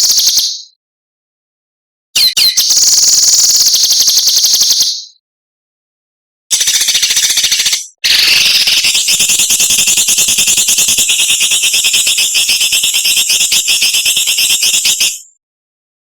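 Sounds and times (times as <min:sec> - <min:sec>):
songbird rasping rapid call: 0:00.0 - 0:00.8, 0:02.2 - 0:05.2, 0:06.5 - 0:15.2.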